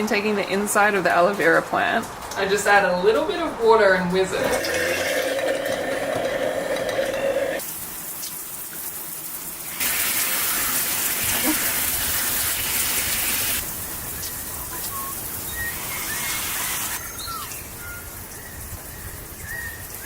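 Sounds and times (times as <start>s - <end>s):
electric blender whirring: 4.5s - 7.6s
hiss of falling water: 7.4s - 20.0s.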